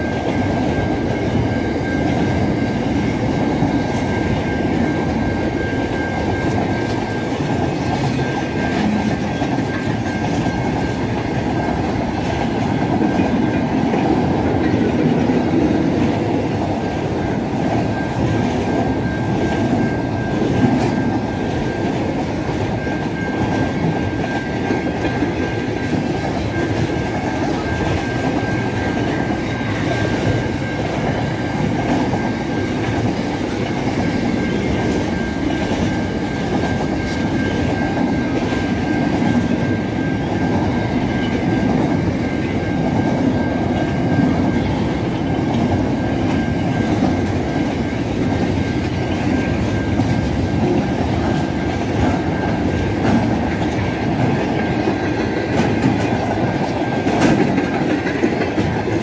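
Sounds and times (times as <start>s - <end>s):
freight train wheels rumbling on rails: 0.0s - 59.0s.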